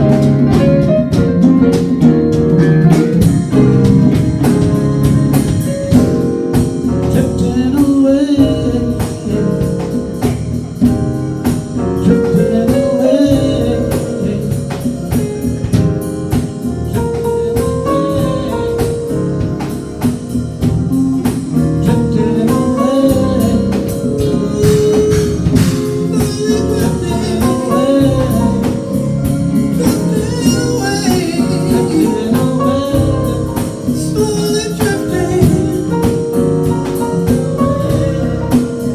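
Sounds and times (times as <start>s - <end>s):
band playing a song: 0.0s - 38.9s
steady drum beat: 0.0s - 38.9s
person singing: 6.9s - 10.9s, 11.9s - 19.7s, 20.9s - 38.9s.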